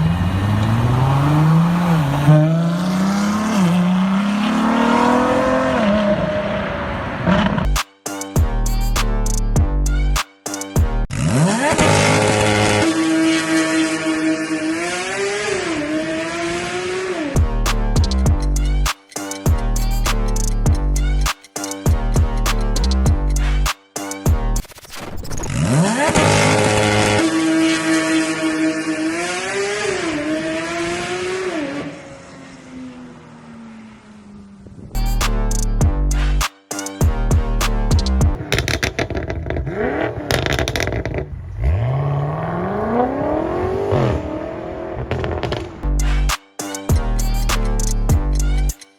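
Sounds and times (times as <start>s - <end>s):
car engine accelerating hard: 0.0s - 7.7s, 11.1s - 18.0s, 25.6s - 34.6s, 38.2s - 45.9s
music: 7.7s - 11.1s, 17.4s - 24.9s, 35.0s - 38.4s, 45.8s - 48.9s.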